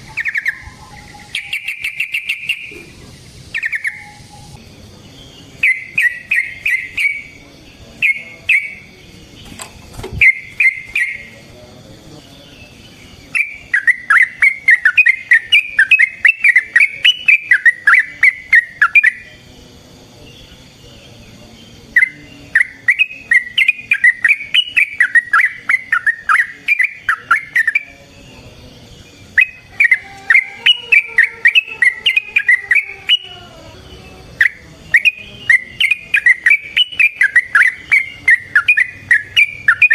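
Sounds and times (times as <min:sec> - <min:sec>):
bird singing chattering runs: 0:00.0 - 0:02.9, 0:05.4 - 0:11.4, 0:22.0 - 0:33.3, 0:34.4 - 0:39.9.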